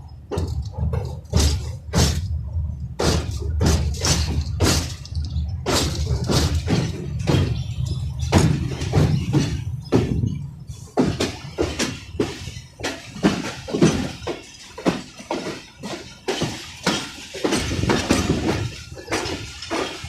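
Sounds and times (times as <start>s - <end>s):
train low rumble: 0.0s - 20.0s
train wheels clanking and rattling: 0.0s - 20.0s.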